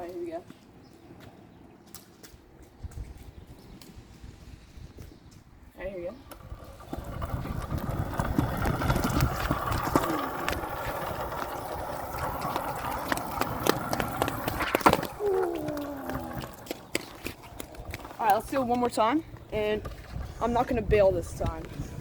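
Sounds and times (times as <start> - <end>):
electric scooter whirring: 6.1 - 22.0.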